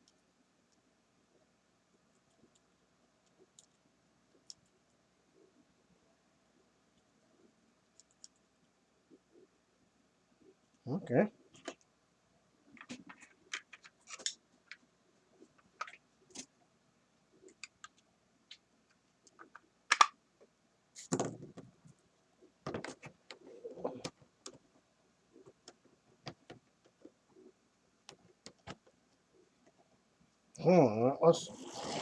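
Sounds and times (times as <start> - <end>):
plastic parts clicking and tapping: 12.8 - 14.8, 19.2 - 20.2.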